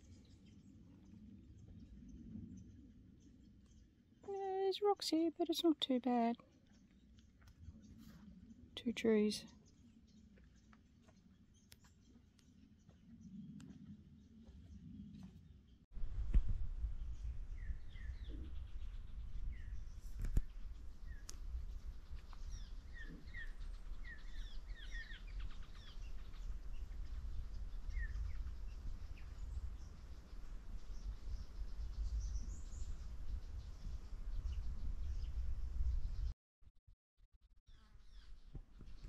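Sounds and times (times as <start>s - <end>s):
birds chirping: 0.0s - 15.8s, 17.0s - 35.4s
steady low rumble: 16.0s - 25.4s.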